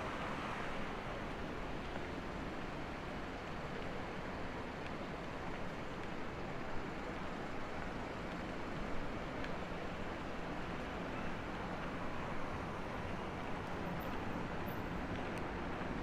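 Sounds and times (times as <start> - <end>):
distant traffic noise: 0.0 - 4.4, 8.2 - 16.0.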